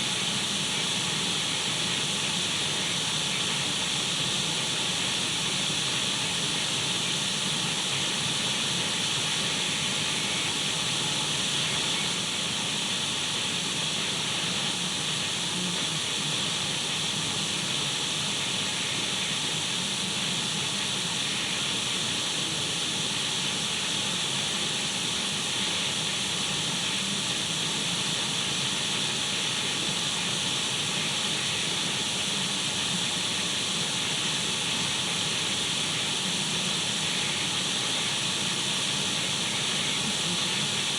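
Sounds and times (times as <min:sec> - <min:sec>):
radio static hiss: 0:13.8 - 0:40.9.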